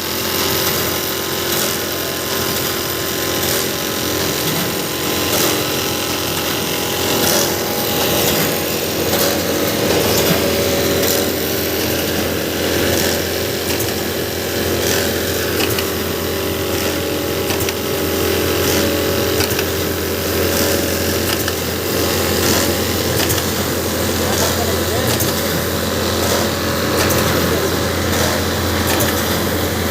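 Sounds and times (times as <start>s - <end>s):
machine running: 0.0s - 29.9s.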